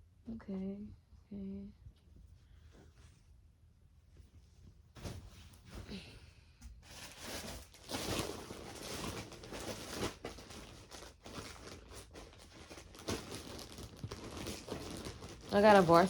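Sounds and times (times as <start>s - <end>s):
clothing rustling: 4.2s - 6.1s, 6.8s - 16.0s
plastic packaging crinkling: 6.9s - 16.0s.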